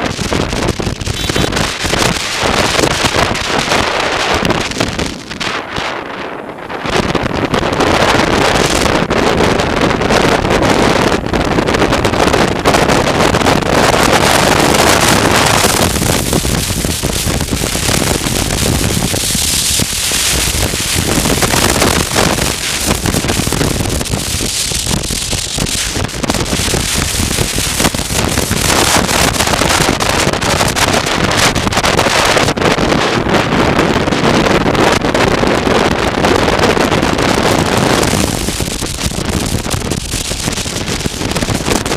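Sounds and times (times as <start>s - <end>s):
motorcycle engine: 0.0s - 7.2s
road noise: 0.0s - 41.9s
wind rushing over microphone: 0.0s - 41.9s.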